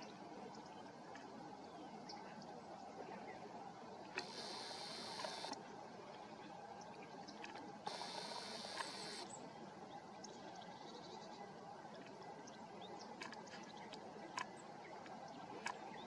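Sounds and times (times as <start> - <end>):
faint steady hiss: 0.0 - 16.0
camera zoom motor whirring: 4.2 - 5.6, 7.9 - 9.2.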